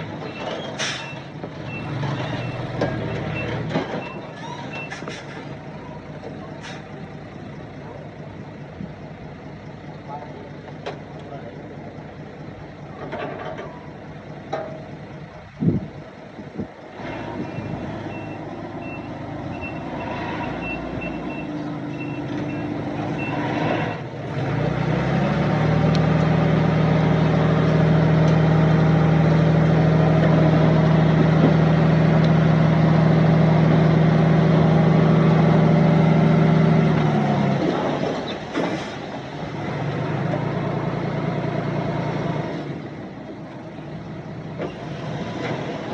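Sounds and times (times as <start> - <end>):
diesel engine revving: 0.0 - 45.9
reversing alarm beeping: 17.5 - 24.0.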